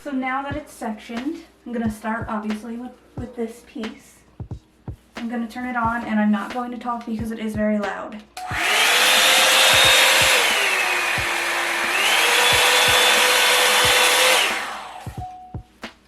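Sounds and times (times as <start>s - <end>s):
hair dryer brush fan whine: 8.4s - 15.5s.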